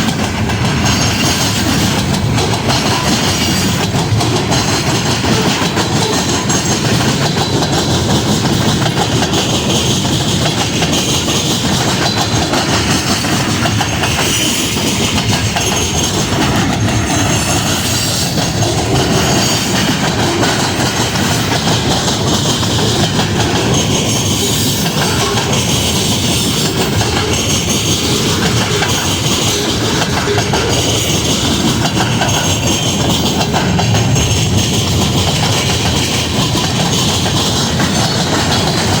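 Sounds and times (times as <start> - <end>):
train rumbling past: 0.0 - 39.0
train wheels clicking over rail joints: 0.0 - 39.0.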